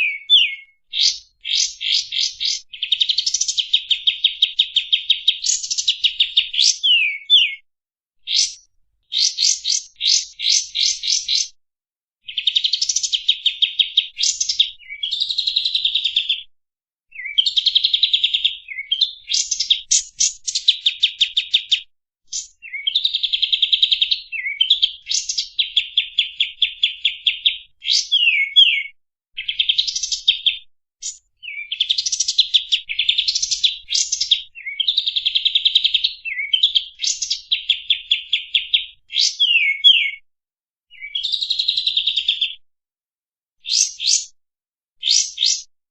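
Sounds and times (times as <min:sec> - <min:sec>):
songbird singing trills: 0:00.0 - 0:07.6, 0:08.3 - 0:11.5, 0:17.1 - 0:35.2, 0:36.1 - 0:40.2.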